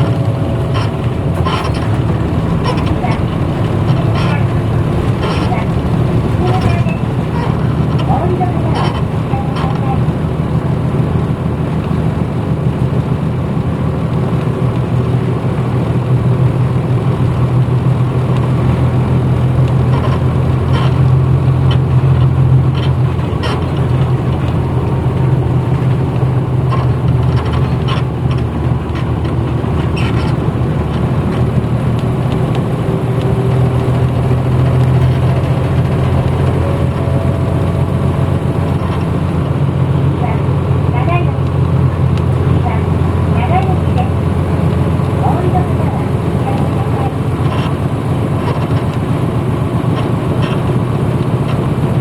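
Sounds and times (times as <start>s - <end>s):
short clicks and rattles: 0.0s - 10.2s
bus diesel engine running: 0.0s - 52.0s.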